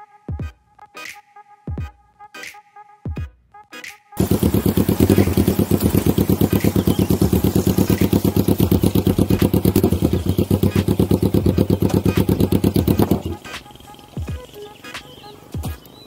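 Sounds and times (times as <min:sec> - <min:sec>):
motorcycle engine running: 0:04.2 - 0:14.8.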